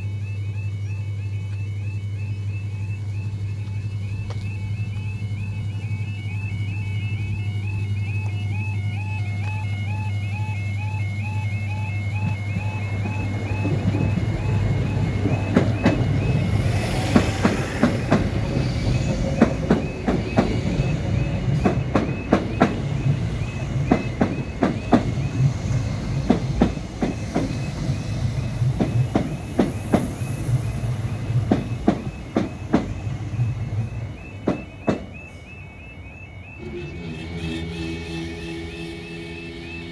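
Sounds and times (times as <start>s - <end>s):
crossing alarm high tone: 0.0s - 39.9s
train humming: 0.0s - 39.9s
wheels clicking over rail joints: 11.7s - 35.5s.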